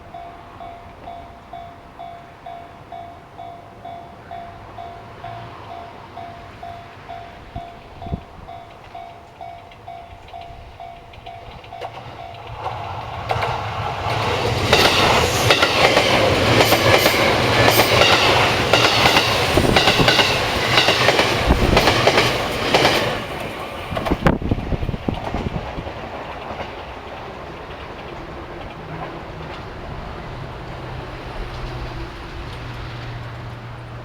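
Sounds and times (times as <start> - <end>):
train wheels clattering over rail joints: 7.6 - 33.6.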